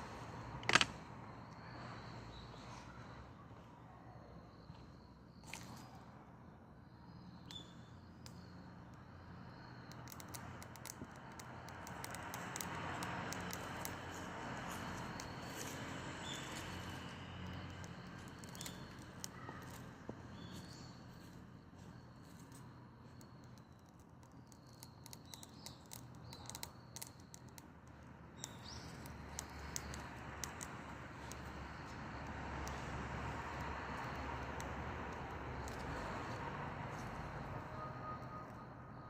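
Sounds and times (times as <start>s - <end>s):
twigs crackling and popping: 0.6s - 1.0s, 8.2s - 37.8s.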